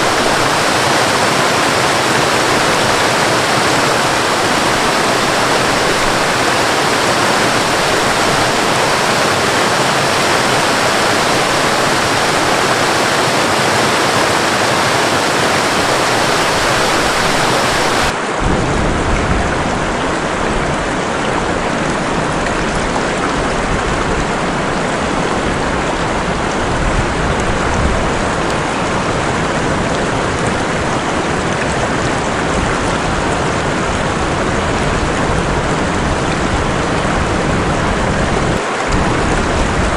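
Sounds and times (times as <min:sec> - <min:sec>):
steady rain: 0:00.0 - 0:39.9
waterfall rushing: 0:00.0 - 0:39.9.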